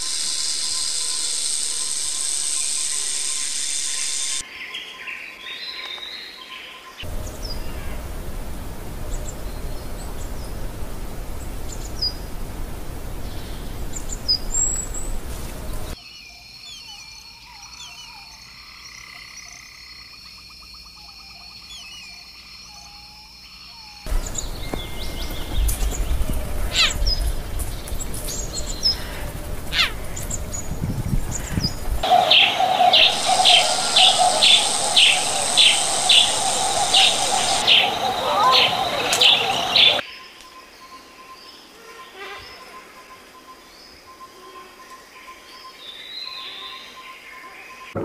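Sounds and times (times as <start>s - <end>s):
steady high hum: 7.1s - 16.0s, 24.1s - 40.0s
steady rushing noise: 7.1s - 16.0s, 24.1s - 40.0s
short chirping calls: 29.7s - 40.0s.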